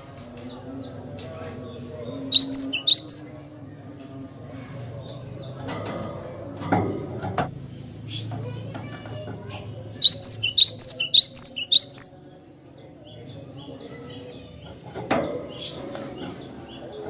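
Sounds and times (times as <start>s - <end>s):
bird chirping: 0.3s - 3.4s, 10.0s - 14.6s.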